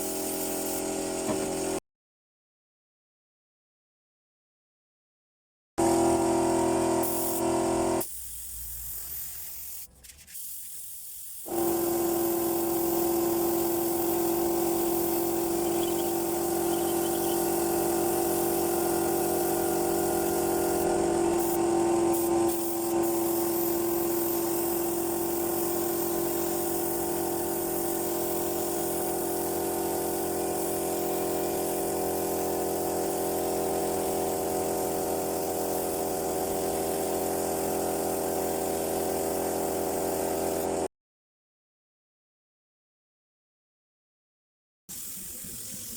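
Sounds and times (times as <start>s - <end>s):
paint spray gun hissing: 0.0s - 1.8s, 5.8s - 40.9s, 44.9s - 45.9s
motor humming: 15.3s - 22.5s.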